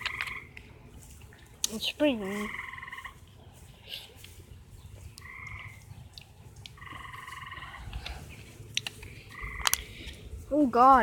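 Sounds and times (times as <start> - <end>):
tree frog trilling: 0.0 - 0.6, 2.2 - 3.2, 5.1 - 8.0, 9.2 - 9.9
low wind rumble on microphone: 2.2 - 11.0.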